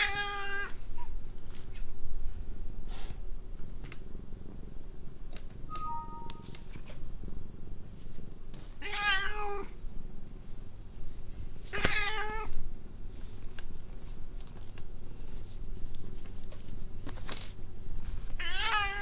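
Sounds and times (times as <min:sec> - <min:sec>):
cat meowing: 0:18.4 - 0:19.0.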